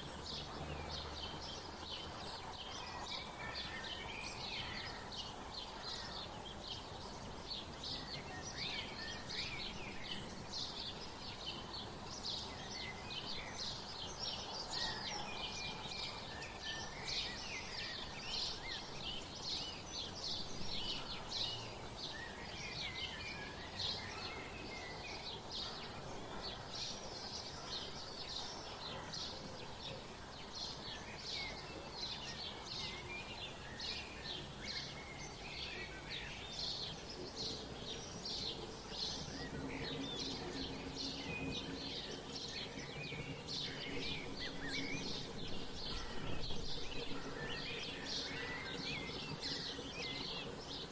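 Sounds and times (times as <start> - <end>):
outdoor background hiss: 0.0 - 50.9
songbirds chirping: 0.0 - 50.9.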